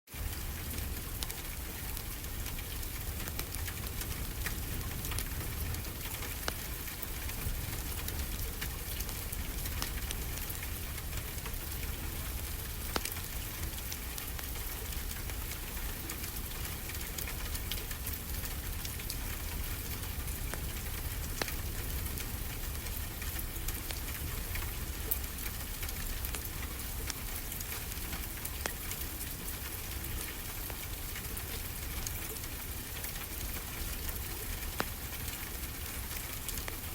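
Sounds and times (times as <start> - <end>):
wood fire crackling and popping: 0.2 - 36.9.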